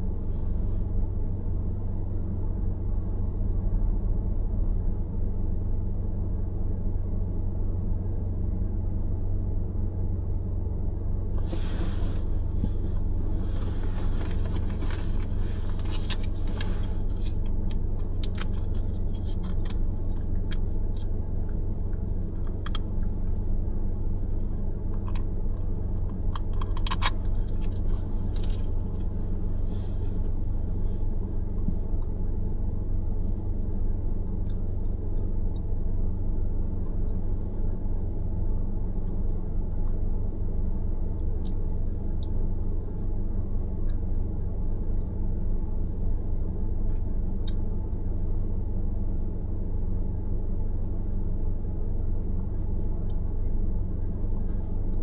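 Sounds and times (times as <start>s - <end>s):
car engine and tyre rumble: 0.0s - 55.0s
light clicks and rattles: 24.4s - 29.2s.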